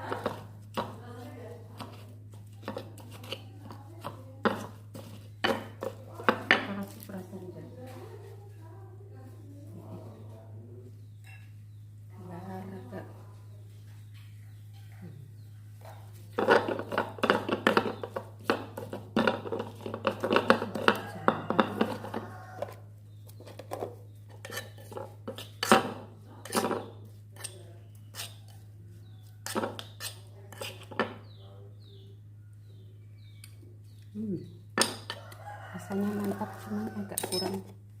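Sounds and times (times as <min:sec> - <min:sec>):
utensil knocking against a dish: 0:02.6 - 0:07.0, 0:16.4 - 0:22.7.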